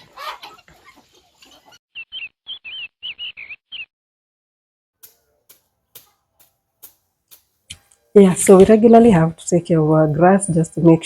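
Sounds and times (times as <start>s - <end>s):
songbird chirping: 0.8s - 3.9s.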